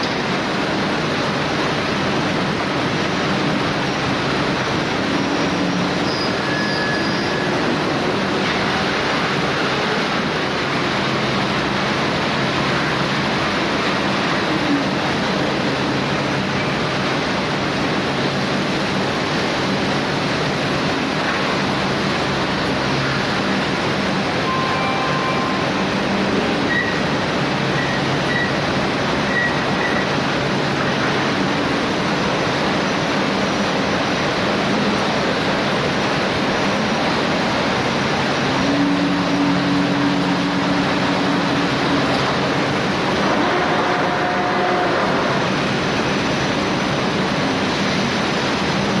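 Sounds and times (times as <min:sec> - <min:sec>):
faint short beeps: 0:24.4 - 0:25.7.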